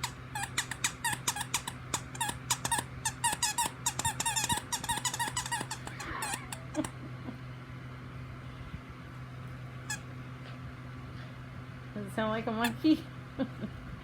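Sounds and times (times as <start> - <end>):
squeaky toy squeaks: 0.0 - 6.7
monkey-like chattering: 3.4 - 6.9.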